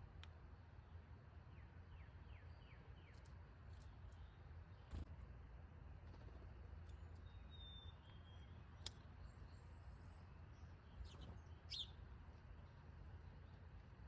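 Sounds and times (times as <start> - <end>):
faint bird chirps: 6.8 - 12.0.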